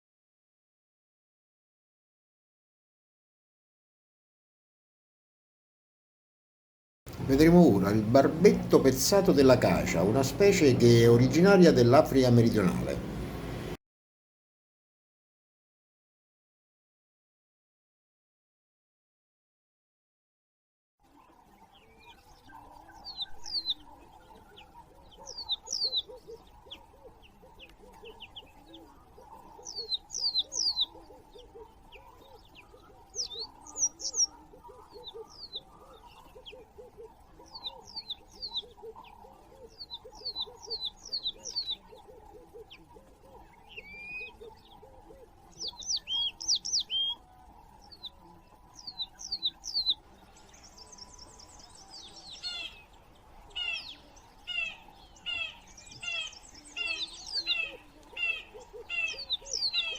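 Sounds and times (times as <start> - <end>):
birds chirping: 7.1 - 13.8, 21.4 - 59.9
low repeated notes: 7.1 - 13.8.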